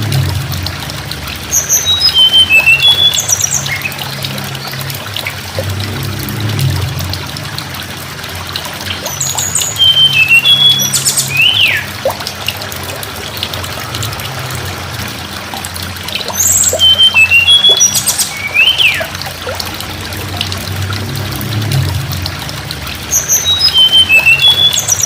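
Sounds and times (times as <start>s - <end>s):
water trickling: 0.0s - 25.0s
bird whistling song: 1.5s - 4.2s, 9.1s - 12.0s, 16.3s - 19.2s, 23.1s - 25.0s.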